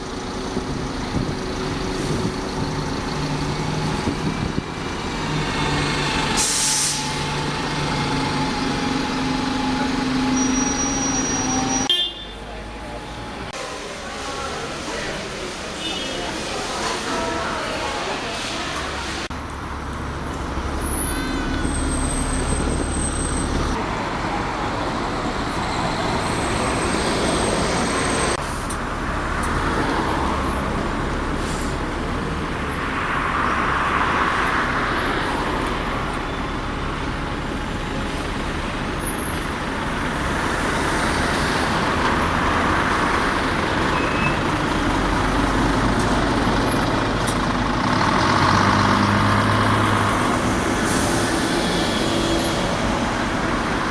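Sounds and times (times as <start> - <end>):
bus engines droning: 0.0 - 53.9
air brake hiss: 6.4 - 7.2.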